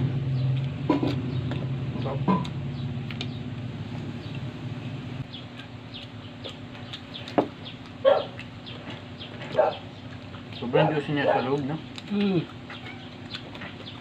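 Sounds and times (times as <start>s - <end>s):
chewing crispy fried chicken: 5.3s - 14.0s.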